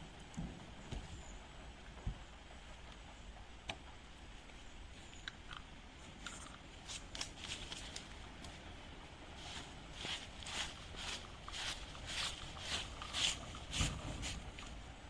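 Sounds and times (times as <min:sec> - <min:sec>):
rustling: 0:06.0 - 0:08.7, 0:09.3 - 0:14.8.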